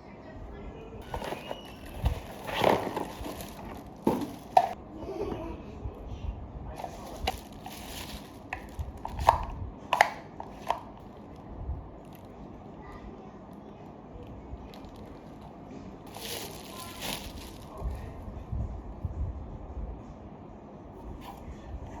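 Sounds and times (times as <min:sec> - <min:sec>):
packaging rustling: 0:01.0 - 0:04.8, 0:06.8 - 0:11.4, 0:16.1 - 0:18.1.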